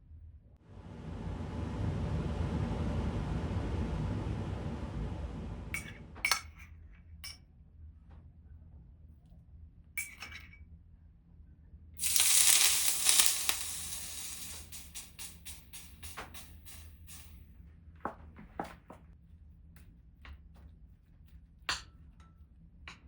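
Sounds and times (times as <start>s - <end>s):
hissing rush: 12.0s - 17.3s
small ticks: 12.0s - 17.3s.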